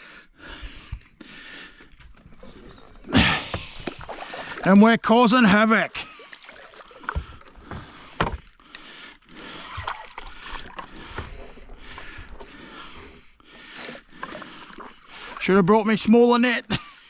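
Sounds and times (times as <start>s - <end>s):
fish splashing in water: 2.3s - 4.8s, 6.0s - 7.7s.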